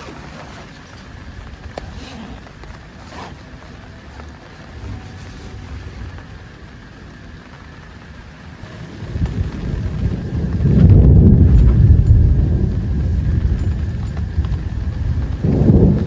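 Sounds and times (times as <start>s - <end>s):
rain: 0.0s - 16.0s
low rumble: 3.8s - 16.0s
wind buffeting microphone: 3.8s - 16.0s.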